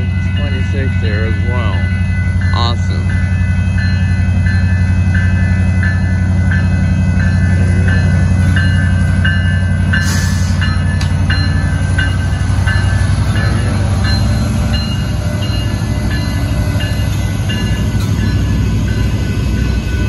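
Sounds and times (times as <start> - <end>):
crossing signal bell ringing: 0.0 - 20.0
diesel locomotives rumbling past: 0.0 - 20.0.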